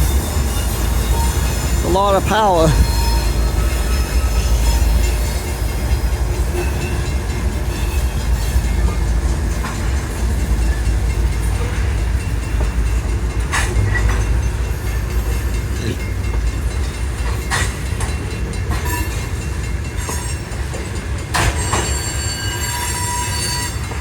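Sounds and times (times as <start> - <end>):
train wheels rumbling on rail: 0.0 - 24.0
wheel squeal: 21.6 - 24.0.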